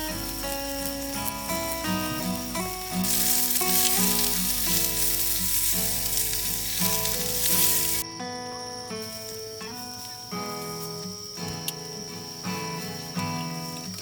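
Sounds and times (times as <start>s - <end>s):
steak sizzling in a skillet: 0.0s - 8.0s.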